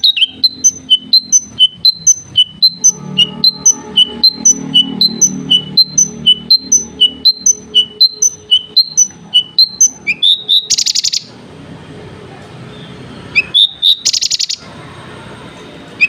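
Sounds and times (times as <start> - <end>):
bird whistled notes: 0.0 - 11.3, 13.3 - 14.6.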